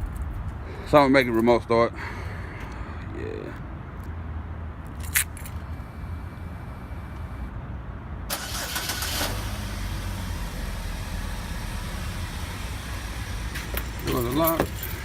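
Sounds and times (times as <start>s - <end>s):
car engine starting and idling: 8.3s - 15.0s.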